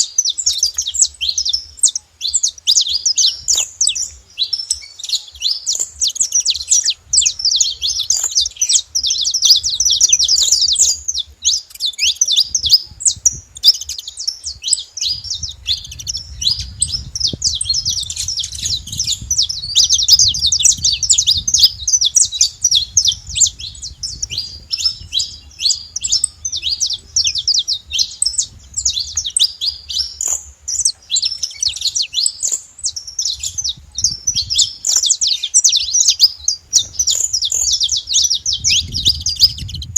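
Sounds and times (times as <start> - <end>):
flock of finches chirping: 0.0 - 39.9.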